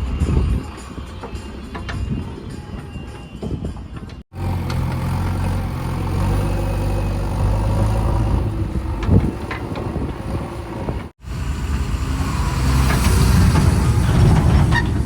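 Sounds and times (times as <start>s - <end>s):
diesel engine running: 4.3s - 15.0s.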